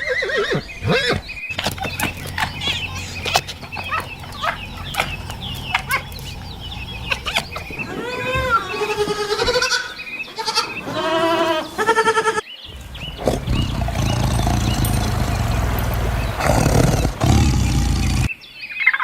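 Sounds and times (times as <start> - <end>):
steady low rumbling noise: 1.5 - 9.0, 12.7 - 18.3
animals bleating: 1.6 - 18.3.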